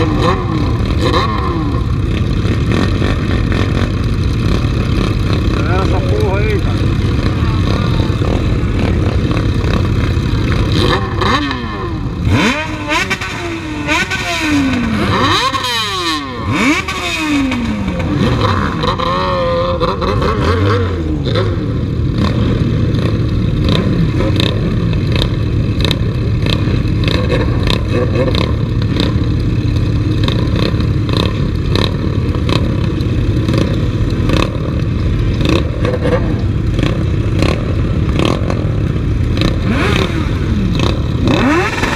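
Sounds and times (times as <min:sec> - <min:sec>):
motorcycle engines revving: 0:00.0 - 0:41.9.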